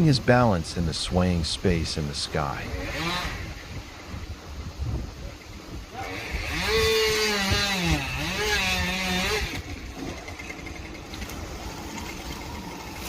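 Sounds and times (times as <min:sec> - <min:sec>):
chainsaw engine revving: 0:02.6 - 0:03.7, 0:06.0 - 0:13.0.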